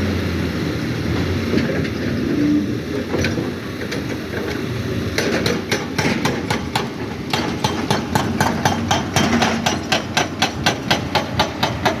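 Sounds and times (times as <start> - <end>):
fast metallic knocking: 5.4 - 12.0.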